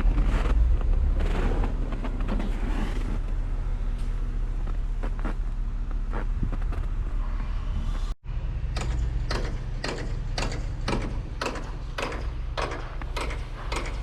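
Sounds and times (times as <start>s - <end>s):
footsteps crunching on snow: 0.0s - 7.2s
vehicle engine idling: 0.0s - 14.0s.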